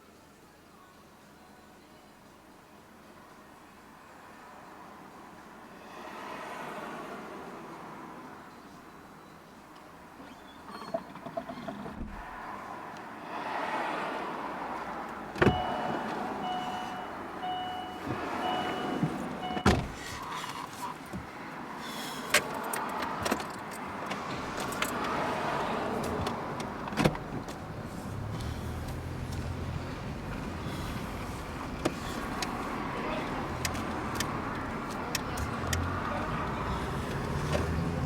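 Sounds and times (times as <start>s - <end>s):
knocks and clunks: 15.3s - 16.6s, 17.8s - 20.0s, 26.0s - 27.7s
electronic warning chime beeping: 15.5s - 19.7s.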